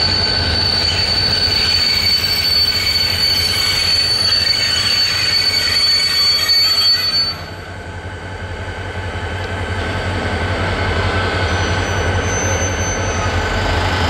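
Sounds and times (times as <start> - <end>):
high wheel squeal: 0.0 - 7.7, 10.7 - 14.0.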